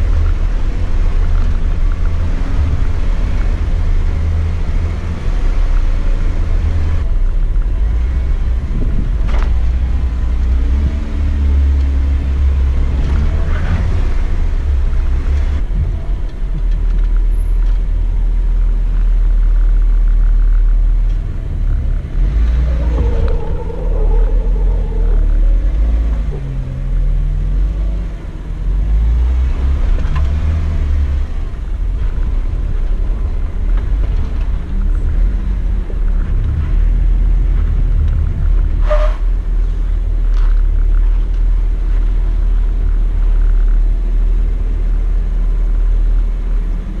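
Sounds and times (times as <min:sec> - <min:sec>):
off-road vehicle engine rumbling: 0:00.0 - 0:47.0.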